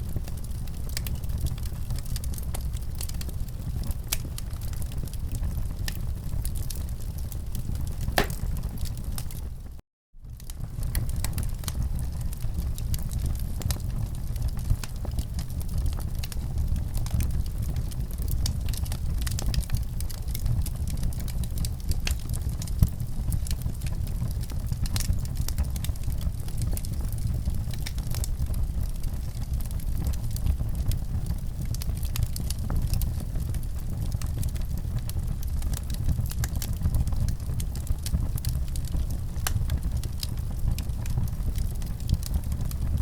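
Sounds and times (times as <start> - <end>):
wood fire crackling: 0.1 - 9.7, 10.3 - 43.0
sharp pops of fire: 8.2 - 9.3.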